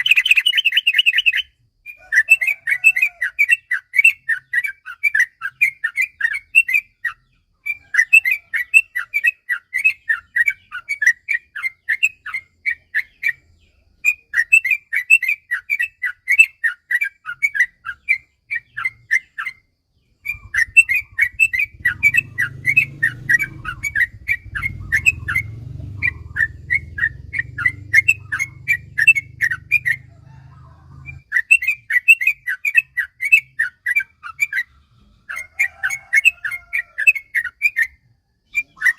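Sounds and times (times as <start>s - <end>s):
bird singing bubbly notes: 0.0s - 30.4s
low hum: 20.2s - 31.2s.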